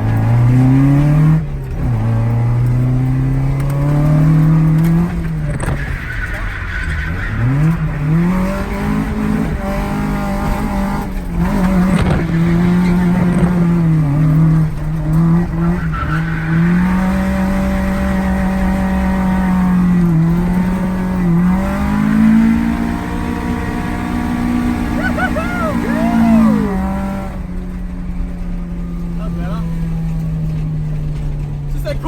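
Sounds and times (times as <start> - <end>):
engine at high revs: 7.3 - 27.7
tyres squealing: 24.6 - 27.0.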